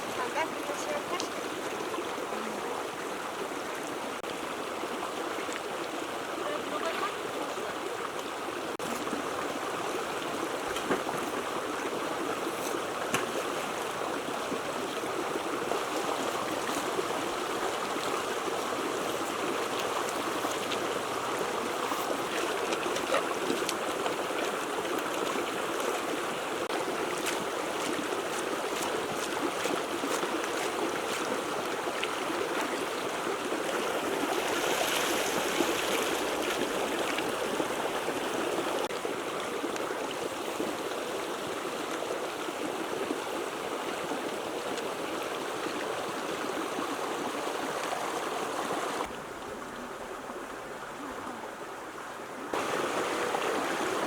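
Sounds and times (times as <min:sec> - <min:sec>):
water rushing: 0:00.0 - 0:54.0
small splashes: 0:08.8 - 0:32.9, 0:33.6 - 0:37.6.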